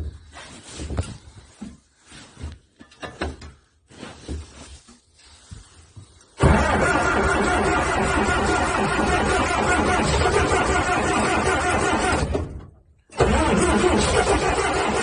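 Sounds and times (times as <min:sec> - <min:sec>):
clunks and knocks: 0:02.8 - 0:03.6, 0:12.2 - 0:12.8
engine starter running: 0:06.4 - 0:15.0.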